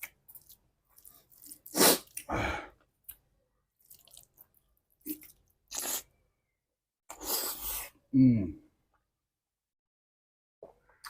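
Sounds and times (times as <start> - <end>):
wet chewing: 0.0 - 2.3, 3.8 - 6.0.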